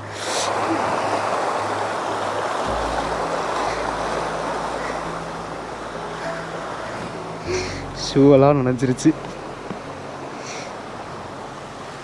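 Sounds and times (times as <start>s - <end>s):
stream water flowing: 0.0s - 12.0s
low rumble: 2.7s - 10.2s.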